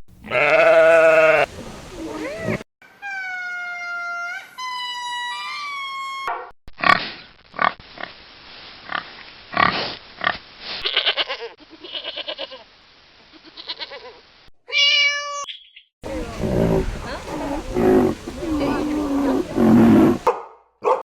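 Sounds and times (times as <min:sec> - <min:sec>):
different animal sound: 0:15.4 - 0:20.3.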